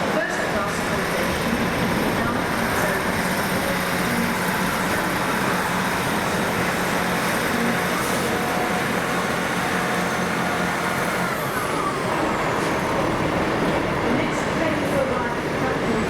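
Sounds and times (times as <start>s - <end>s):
train engine rumbling hum: 0.0s - 16.0s.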